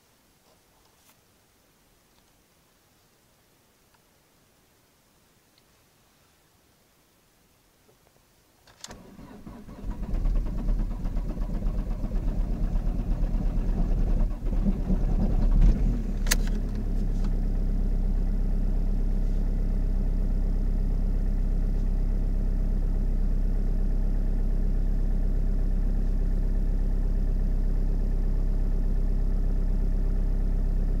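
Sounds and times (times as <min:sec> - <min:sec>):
engine cranking: 0:08.8 - 0:16.8
diesel engine idling: 0:09.0 - 0:31.0
diesel engine running rough: 0:09.0 - 0:31.0.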